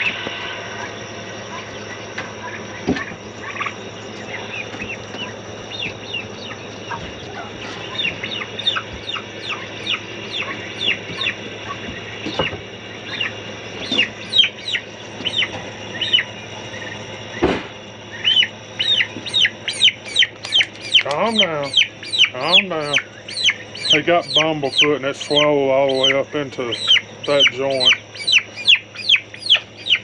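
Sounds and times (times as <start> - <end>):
poultry chirping: 0.0 - 30.0
sharp knocks: 17.4 - 17.8.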